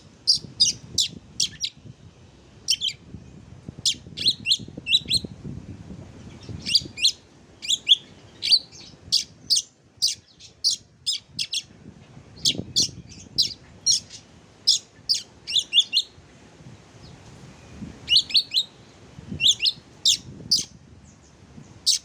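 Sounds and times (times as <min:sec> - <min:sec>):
songbird chirping and whistling: 0:00.3 - 0:01.8, 0:02.7 - 0:03.0, 0:03.8 - 0:05.3, 0:06.4 - 0:11.7, 0:12.4 - 0:16.2, 0:18.0 - 0:18.8, 0:19.4 - 0:20.7.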